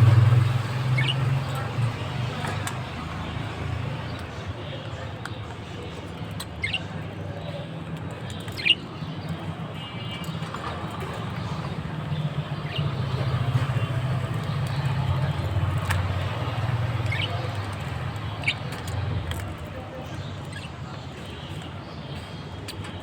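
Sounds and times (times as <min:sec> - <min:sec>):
bird chirping: 0:00.0 - 0:02.0, 0:08.4 - 0:19.1.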